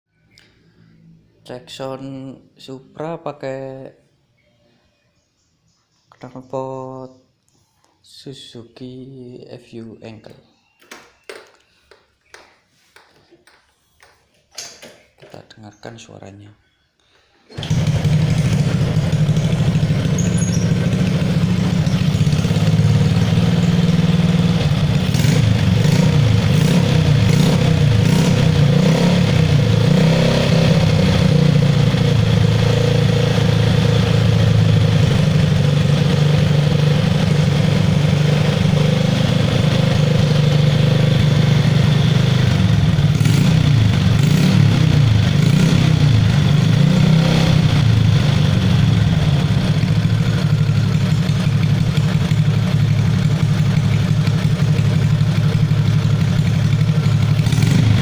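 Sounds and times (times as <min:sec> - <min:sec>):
motorcycle engine idling loudly: 0:17.6 - 0:58.0.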